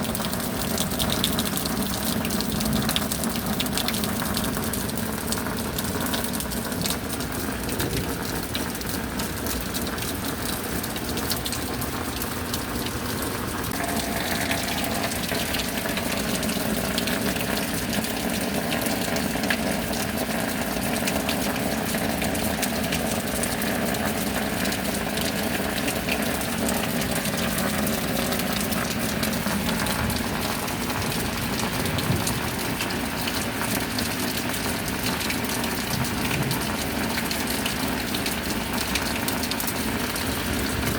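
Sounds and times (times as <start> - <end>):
rain: 0.0 - 40.9
water pouring and gushing: 0.0 - 40.9.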